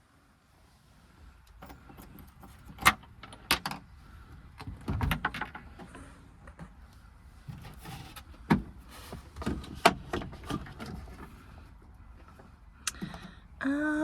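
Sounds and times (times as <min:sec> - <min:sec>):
rustling clatter: 0:01.5 - 0:12.6.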